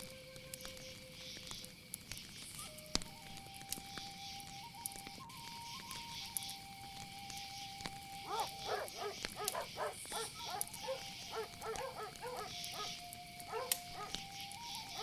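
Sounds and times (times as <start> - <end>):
insect chorus: 0.0 - 15.0
short barking calls: 8.3 - 14.3.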